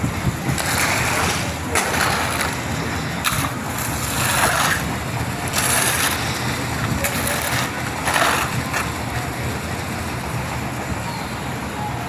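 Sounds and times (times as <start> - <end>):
wet concrete scraping and sloshing: 0.0 - 9.3
concrete mixer engine running: 0.0 - 12.0.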